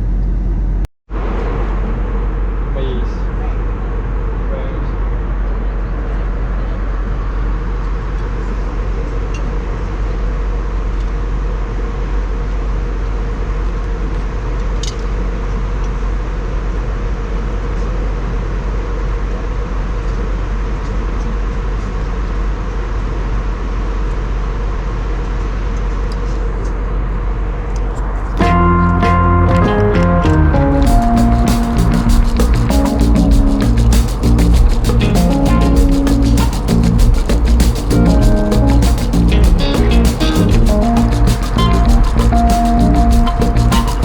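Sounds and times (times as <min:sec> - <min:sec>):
jet engine cabin drone: 0:00.0 - 0:14.6.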